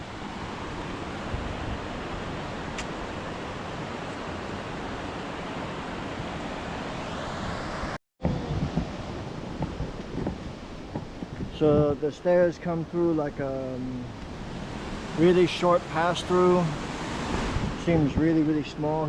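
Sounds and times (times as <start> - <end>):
stream rushing over rocks: 12.8 - 19.0.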